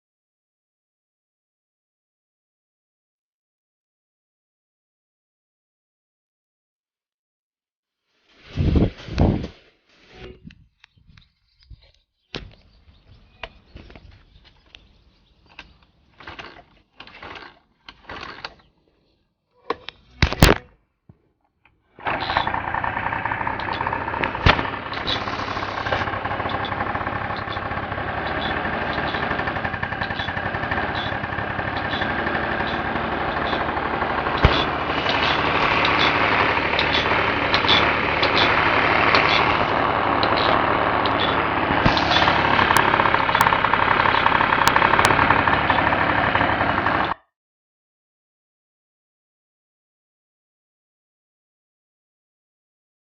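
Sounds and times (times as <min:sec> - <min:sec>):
scooter engine cranking and running: 0:13.2 - 0:20.6, 0:21.7 - 0:47.3.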